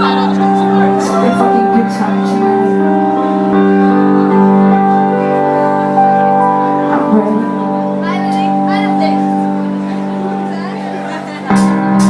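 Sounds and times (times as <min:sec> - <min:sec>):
sustained keyboard chords: 0:00.0 - 0:12.0.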